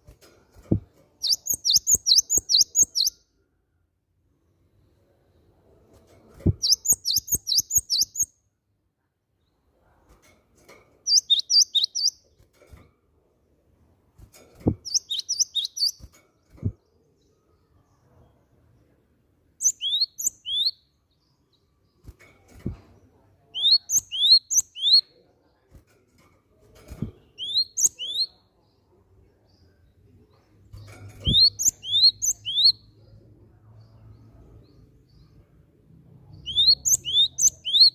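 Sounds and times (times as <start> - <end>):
bird chirping: 0.6 - 3.3, 6.4 - 8.4, 11.1 - 12.4, 14.6 - 19.0, 19.6 - 22.7, 23.4 - 25.2, 27.0 - 37.9.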